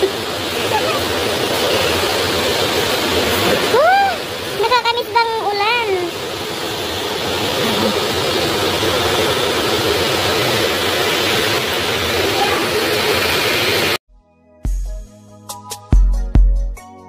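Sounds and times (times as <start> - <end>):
heavy rain on pavement: 0.0 - 14.0
beat-driven music: 14.1 - 17.0.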